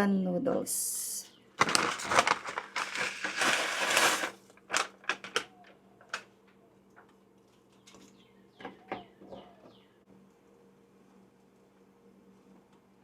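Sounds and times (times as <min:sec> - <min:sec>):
plastic packet rustling: 0:01.6 - 0:06.2.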